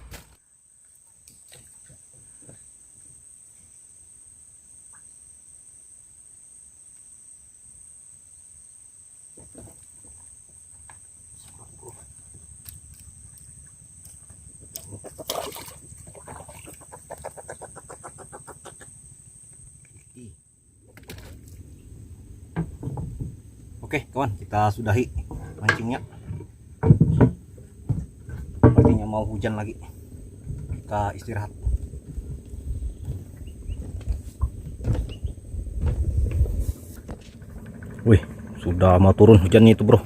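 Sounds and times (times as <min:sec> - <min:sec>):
bird calling: 0:13.3 - 0:19.0, 0:32.8 - 0:35.5.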